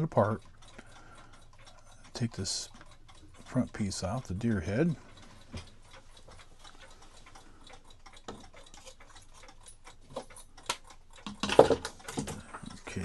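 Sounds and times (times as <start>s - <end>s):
clock ticking: 0.0s - 13.0s
clatter of clock being handled: 11.2s - 12.8s.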